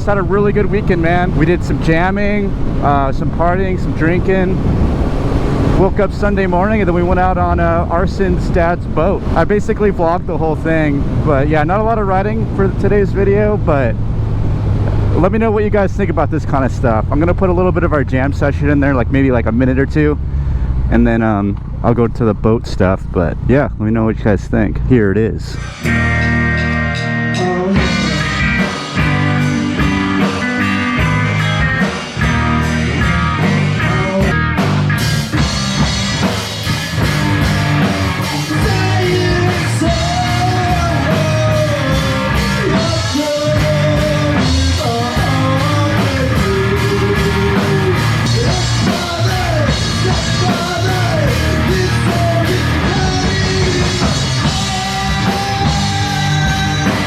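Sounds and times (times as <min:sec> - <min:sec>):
person singing: 0:25.6 - 0:31.3, 0:32.6 - 0:34.4, 0:38.1 - 0:57.0
drums: 0:25.6 - 0:57.0
rock band playing: 0:25.6 - 0:57.0.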